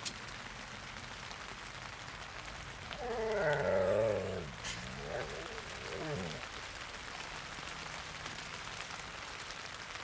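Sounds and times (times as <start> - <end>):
steady rain falling: 0.0 - 10.0.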